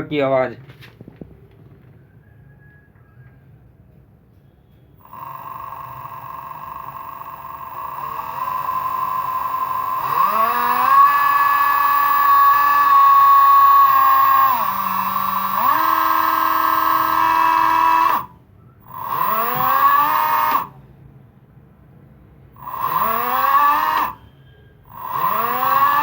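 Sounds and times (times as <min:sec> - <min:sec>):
electric motor whining: 0:05.0 - 0:20.8, 0:22.6 - 0:24.2, 0:24.9 - 0:26.0.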